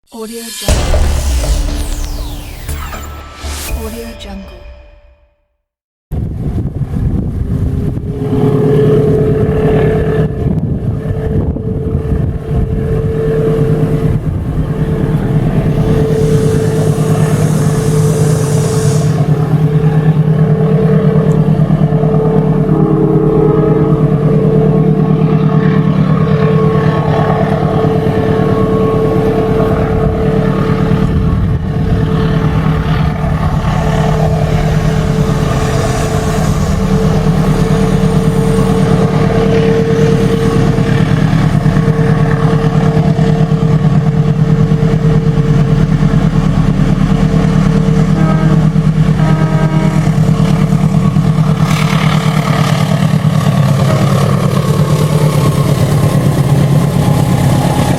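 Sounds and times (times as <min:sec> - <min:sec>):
diesel locomotive engine droning: 0:00.1 - 0:05.5, 0:06.1 - 0:57.9
higher-pitched noise: 0:00.1 - 0:05.6, 0:12.4 - 0:49.4.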